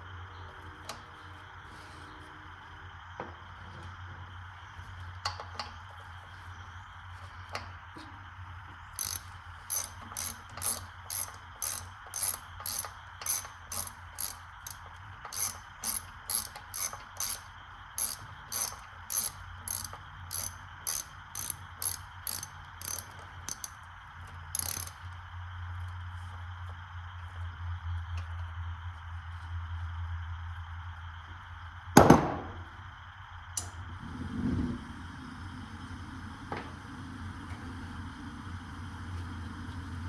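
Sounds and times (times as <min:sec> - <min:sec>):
ratchet wrench clicking: 0:09.0 - 0:23.8, 0:24.5 - 0:25.0.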